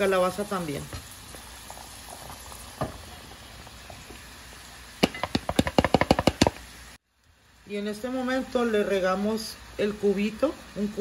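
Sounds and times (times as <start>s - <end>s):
tomatoes sizzling in a pot: 0.0s - 11.0s
sharp taps: 5.0s - 6.6s.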